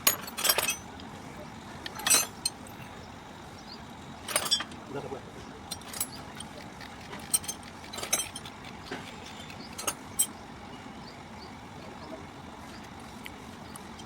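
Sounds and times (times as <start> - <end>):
metal tools clinking on engine parts: 0.0 - 1.1, 1.8 - 3.0, 4.2 - 10.4.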